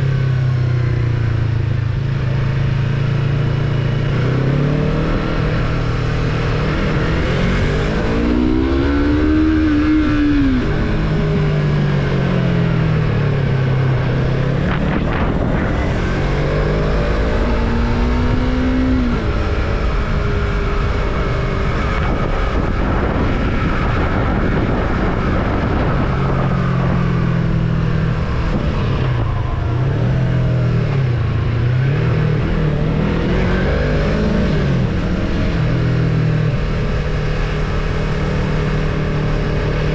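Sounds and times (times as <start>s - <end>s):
motorcycle engine revving: 0.0s - 39.9s
steady rushing noise: 12.6s - 39.9s.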